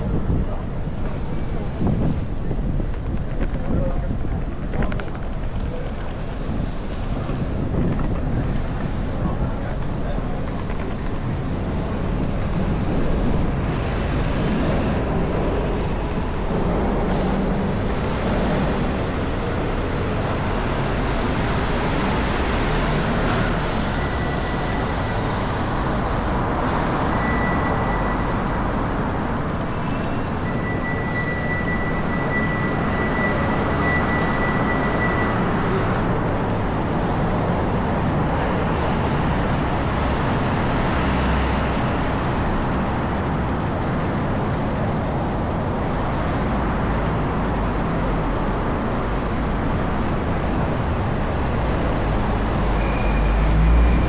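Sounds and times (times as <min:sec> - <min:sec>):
strong wind buffeting microphone: 0:00.0 - 0:27.8
city street noise: 0:00.0 - 0:54.0.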